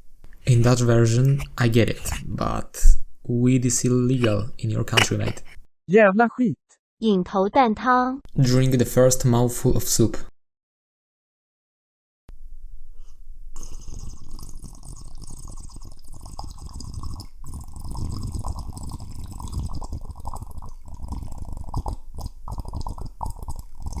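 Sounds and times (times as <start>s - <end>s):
wet crackling liquid: 13.6s - 24.0s.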